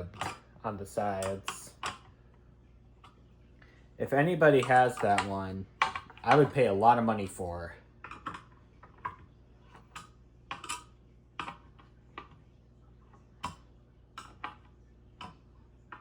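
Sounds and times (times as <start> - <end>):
ceiling fan parts clicking: 0.0 - 2.2, 3.0 - 12.4.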